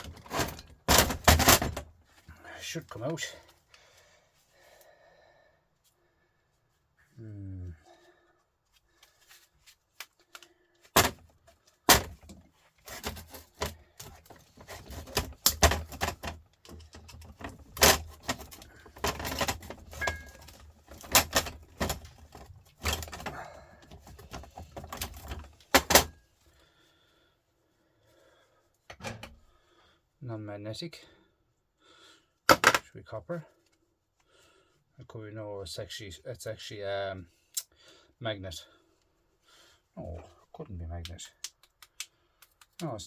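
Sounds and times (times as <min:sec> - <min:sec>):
sharp knocks and rattling: 0:00.0 - 0:01.9
metal parts clattering and knocking: 0:00.0 - 0:02.0, 0:11.0 - 0:11.3, 0:11.9 - 0:26.2, 0:32.5 - 0:32.8.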